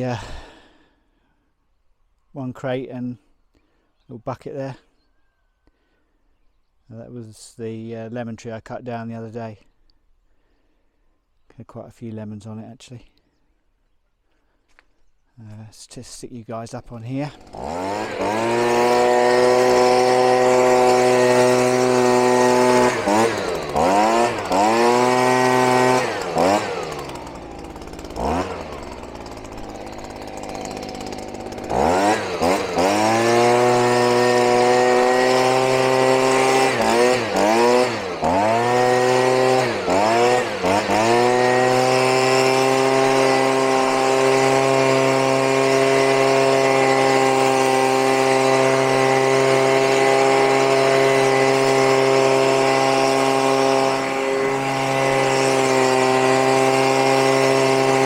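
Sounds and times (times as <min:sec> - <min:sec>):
chainsaw engine revving: 0:00.0 - 0:00.9, 0:17.0 - 0:58.0.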